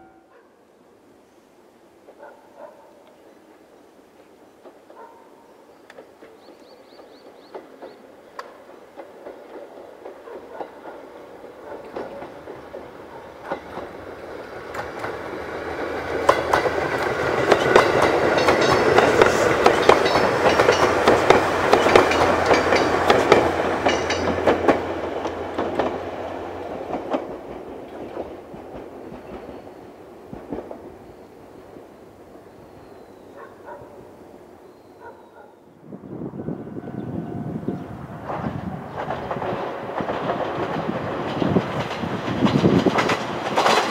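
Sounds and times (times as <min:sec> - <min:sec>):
train wheels clattering: 0:04.6 - 0:31.2, 0:37.7 - 0:43.9.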